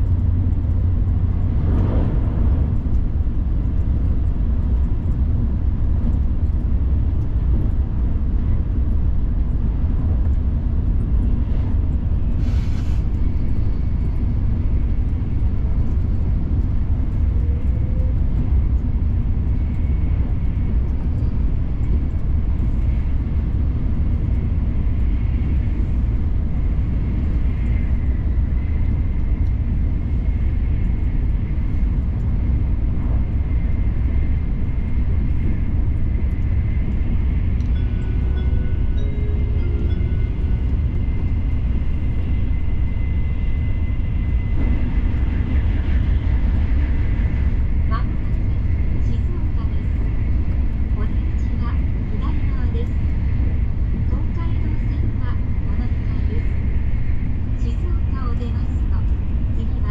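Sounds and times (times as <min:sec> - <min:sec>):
train cabin rumble: 0:00.0 - 0:59.9
high steady whine: 0:17.1 - 0:59.8.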